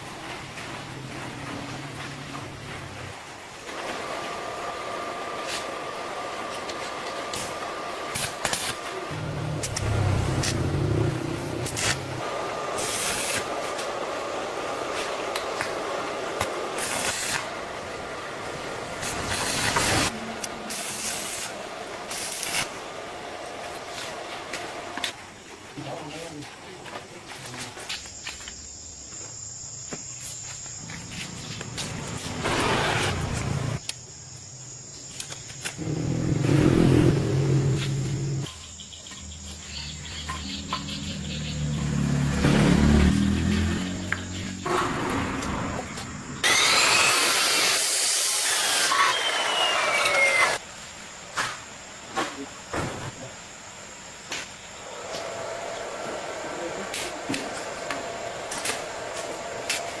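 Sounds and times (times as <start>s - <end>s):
hissing spray bursts: 7.2s - 17.9s, 18.5s - 24.7s, 46.4s - 50.6s
engine revving in surges: 9.1s - 12.7s, 35.8s - 38.5s, 40.6s - 50.6s
steady background noise: 42.4s - 60.0s.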